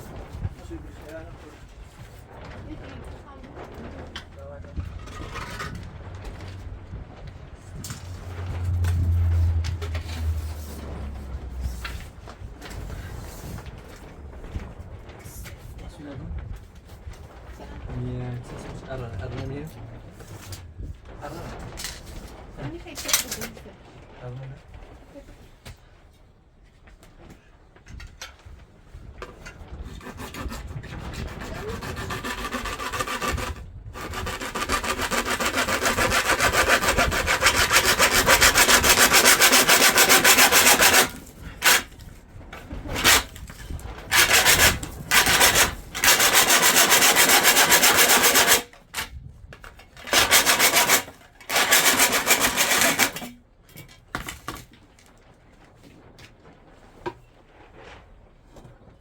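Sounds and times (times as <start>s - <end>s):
power tool grinding: 30.0s - 42.0s, 42.9s - 43.4s, 44.1s - 48.7s, 50.0s - 53.3s.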